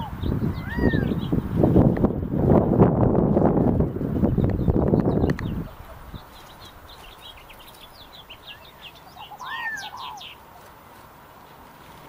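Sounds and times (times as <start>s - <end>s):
lower bird call: 0.0s - 1.8s, 4.2s - 10.7s
short high bird chirps: 6.2s - 10.4s.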